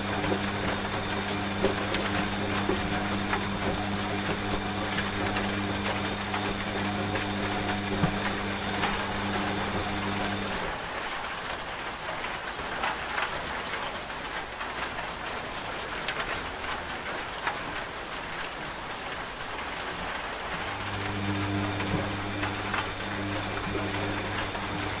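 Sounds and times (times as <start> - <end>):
washing machine motor hum: 0.0 - 10.9, 20.5 - 25.0
steady rain: 0.0 - 25.0.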